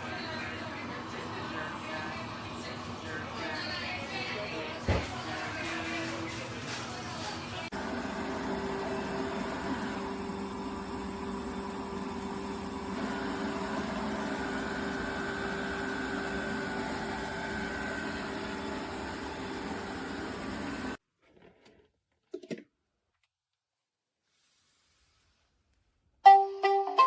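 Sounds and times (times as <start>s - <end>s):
robot vacuum motor whirring: 7.8s - 21.0s.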